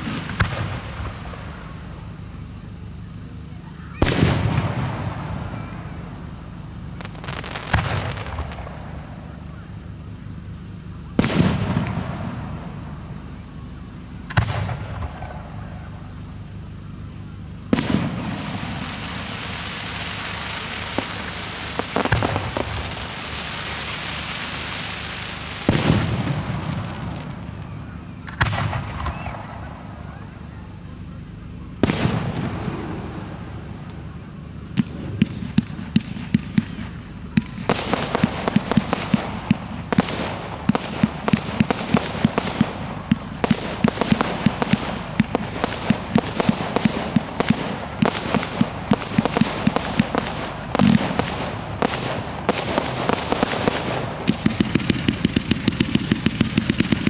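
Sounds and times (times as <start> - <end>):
steady hiss: 0.0 - 57.0
firework shell bursts: 34.7 - 57.0.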